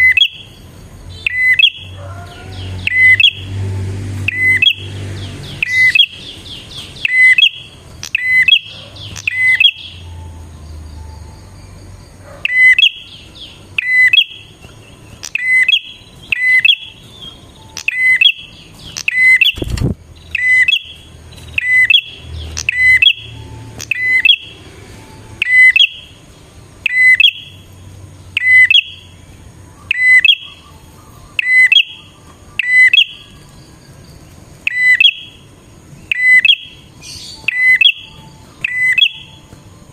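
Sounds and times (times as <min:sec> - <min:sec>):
bird calling sharp chips: 0:05.6 - 0:10.0, 0:12.4 - 0:24.5, 0:36.1 - 0:39.6.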